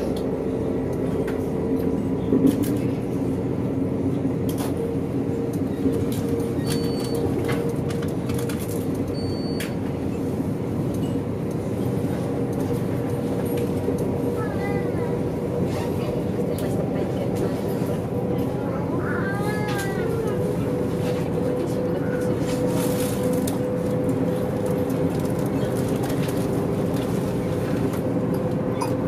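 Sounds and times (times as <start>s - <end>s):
train rumble with low hum: 0.0s - 29.0s.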